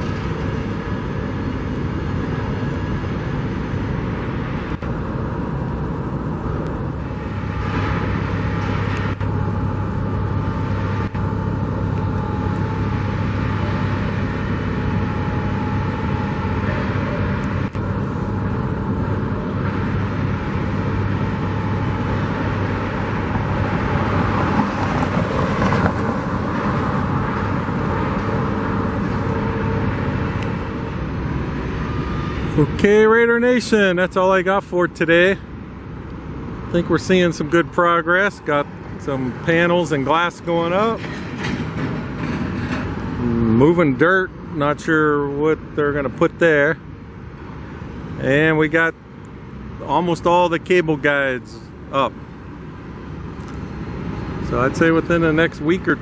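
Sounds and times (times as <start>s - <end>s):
low engine hum: 0.0s - 56.0s
outdoor traffic noise: 0.0s - 56.0s.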